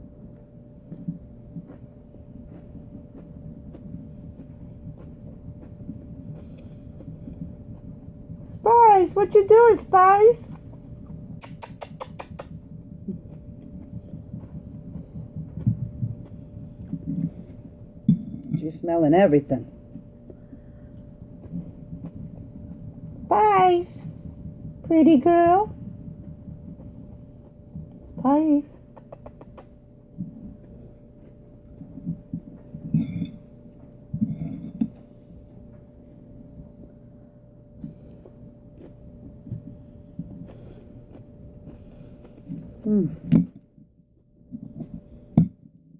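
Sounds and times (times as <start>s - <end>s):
low rumble: 0.0s - 11.5s, 12.4s - 29.0s
faint steady hum: 0.0s - 45.9s
person chewing food: 0.1s - 8.6s, 10.5s - 18.6s, 19.6s - 23.3s, 25.9s - 28.2s, 28.8s - 45.6s.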